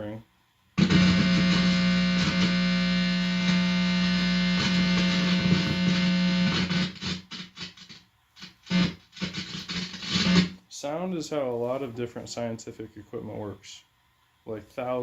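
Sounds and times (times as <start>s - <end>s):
distorted amplifier buzz: 0.7s - 10.6s.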